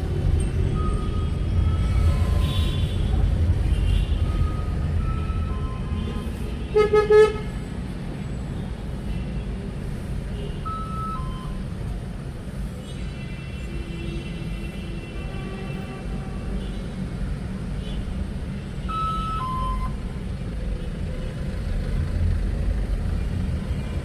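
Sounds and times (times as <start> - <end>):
road traffic rumble: 0.0 - 24.0
car horn tooting: 5.2 - 7.5.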